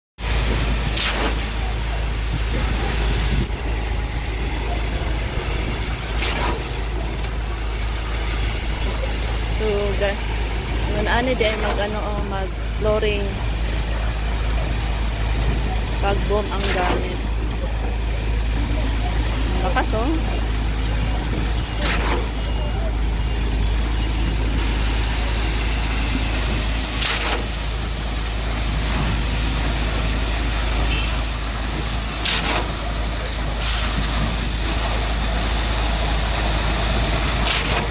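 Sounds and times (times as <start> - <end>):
truck engine rumbling: 0.2 - 37.9.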